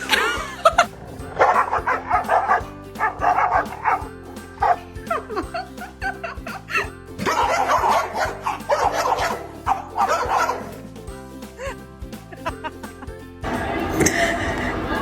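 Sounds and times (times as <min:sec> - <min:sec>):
music with a steady beat: 0:00.0 - 0:15.0
dog barking: 0:01.3 - 0:05.3, 0:07.2 - 0:10.9.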